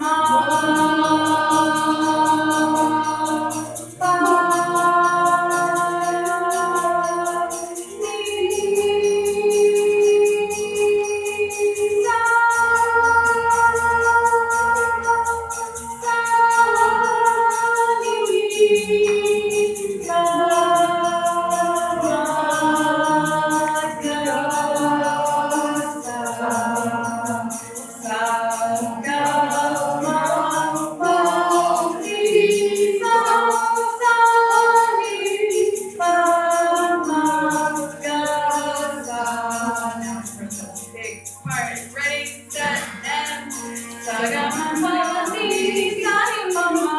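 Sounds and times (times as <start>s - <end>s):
sitar: 0.0s - 20.2s
fast high percussion rhythm: 0.0s - 46.9s
voices singing long notes: 0.0s - 46.9s.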